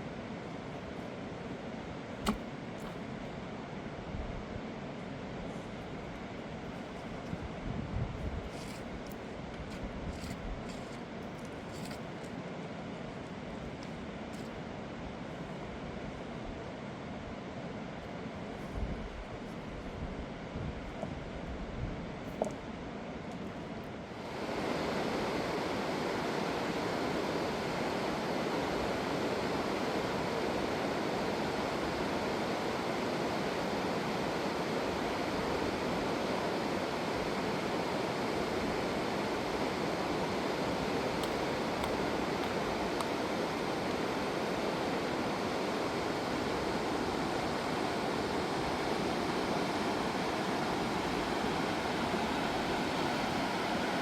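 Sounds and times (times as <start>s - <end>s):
river rushing: 24.2s - 54.0s.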